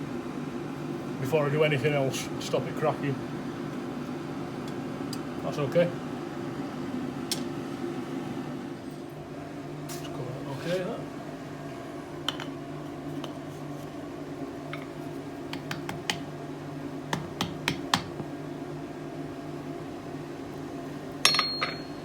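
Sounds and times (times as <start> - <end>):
metal clang: 21.2 - 22.0.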